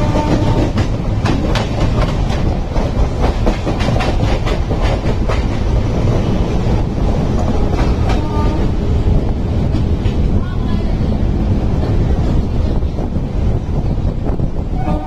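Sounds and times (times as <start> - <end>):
train horn: 0.0 - 0.8, 8.1 - 8.8, 14.7 - 15.0
wheels clattering over rail joints: 0.0 - 6.5
train coaches rumbling past: 0.0 - 15.0.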